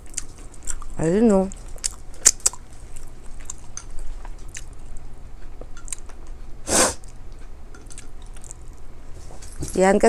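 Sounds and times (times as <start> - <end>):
person chewing food: 0.0 - 9.0
short loud breath: 6.7 - 7.0.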